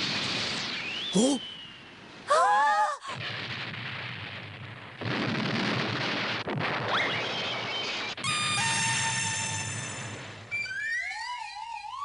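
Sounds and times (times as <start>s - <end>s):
cartoon explosion blast: 3.1s - 10.4s.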